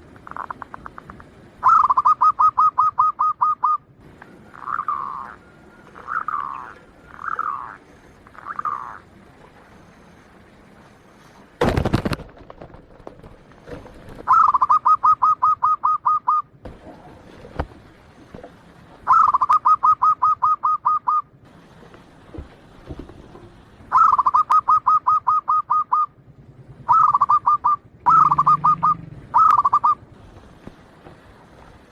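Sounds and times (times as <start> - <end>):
dove cooing: 0.0 - 9.2, 13.7 - 17.7, 19.0 - 21.3, 23.1 - 30.1
loud rustling burst: 11.5 - 14.3.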